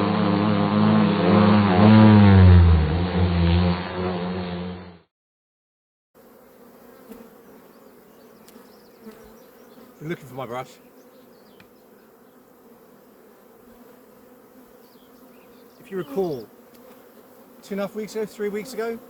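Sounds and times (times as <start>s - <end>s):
loud engine-like drone: 0.0s - 5.0s
honeybee colony humming: 6.2s - 19.0s.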